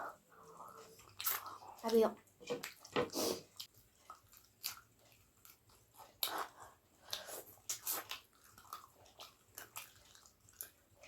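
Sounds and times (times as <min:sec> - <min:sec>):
person chewing meat on the bone: 0:03.6 - 0:11.0.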